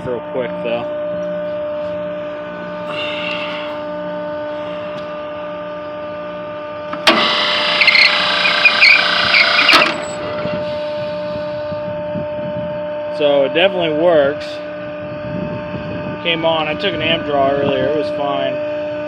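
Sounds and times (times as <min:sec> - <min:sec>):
electrical hum: 0:00.0 - 0:19.0
exhaust fan running: 0:00.0 - 0:19.0
fan switch clunk: 0:06.9 - 0:08.9.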